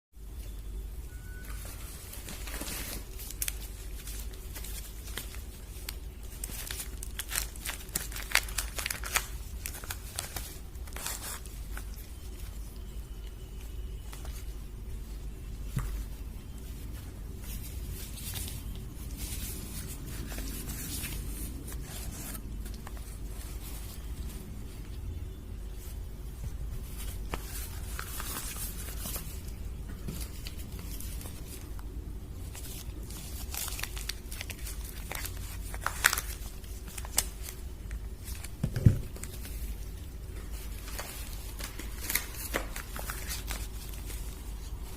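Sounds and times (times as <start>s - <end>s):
steady low hum: 0.2s - 44.9s
wrapper crinkling and tearing: 1.6s - 14.5s, 30.2s - 44.9s.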